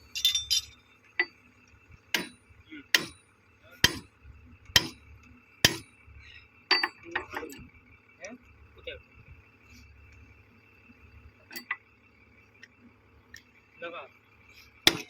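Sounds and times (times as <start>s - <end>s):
hammer striking metal: 2.1s - 3.2s, 3.8s - 4.1s, 4.8s - 5.0s, 5.6s - 5.9s.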